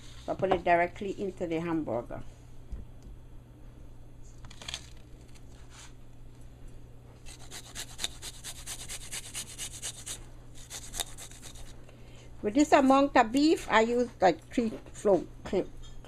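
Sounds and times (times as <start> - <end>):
garlic grating rasps: 7.2 - 11.8.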